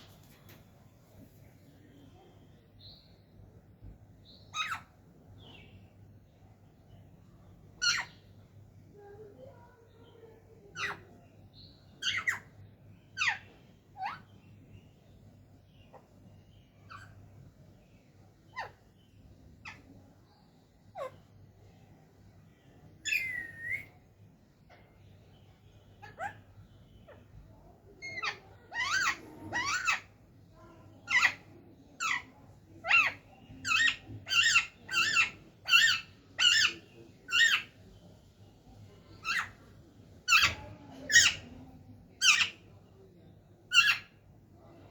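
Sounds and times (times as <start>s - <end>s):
parrot calls: 28.0s - 30.1s.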